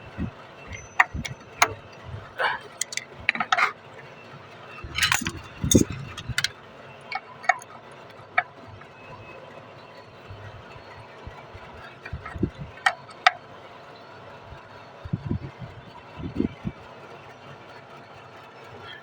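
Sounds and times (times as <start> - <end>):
metal tools clinking and knocking: 0.1 - 3.8, 4.8 - 7.8.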